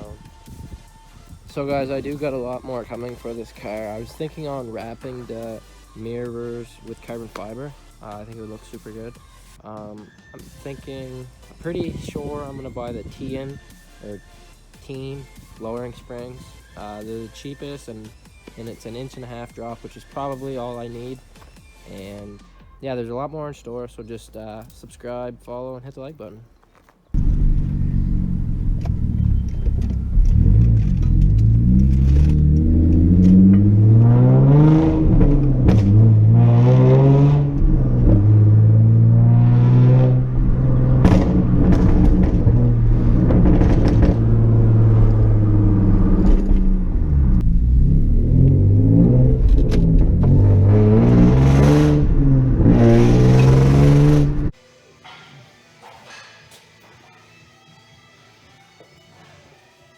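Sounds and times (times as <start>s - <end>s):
car engine revving: 27.2s - 54.6s.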